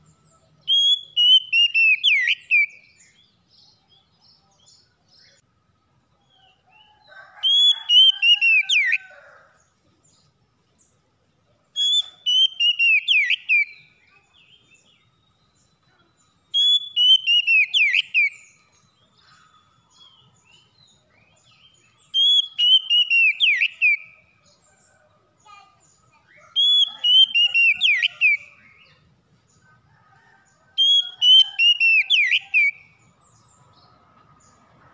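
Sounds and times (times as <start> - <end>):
faint bird chirps: 0.0 - 34.6
bird singing whistled phrase: 0.7 - 2.9, 11.8 - 15.8, 16.4 - 18.6, 22.1 - 24.2, 26.2 - 28.8, 30.8 - 32.8.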